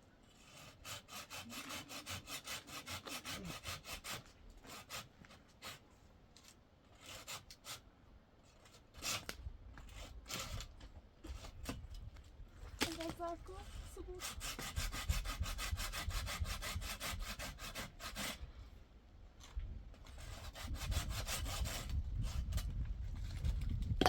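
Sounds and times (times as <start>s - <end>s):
handsaw cutting wood: 0.3s - 5.8s, 7.0s - 7.8s, 13.6s - 18.4s, 20.1s - 22.6s.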